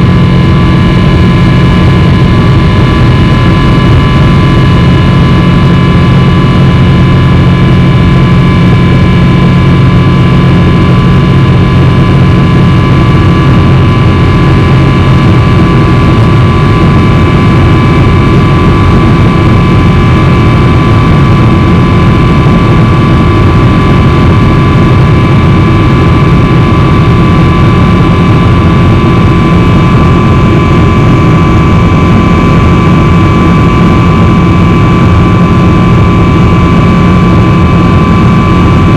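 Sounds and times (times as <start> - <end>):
jet engine roar in cabin: 0.0 - 38.9
steady whining tones: 0.0 - 38.9.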